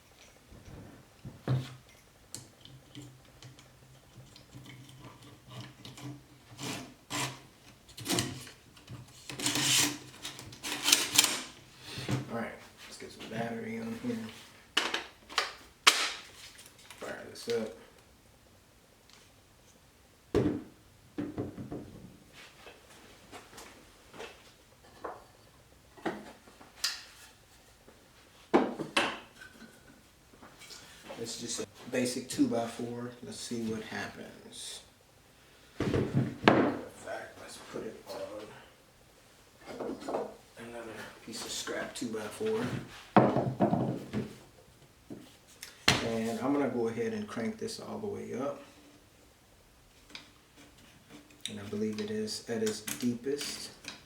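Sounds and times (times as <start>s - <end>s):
wooden knocks and clunks: 20.3s - 22.2s, 35.8s - 36.8s, 42.7s - 44.4s.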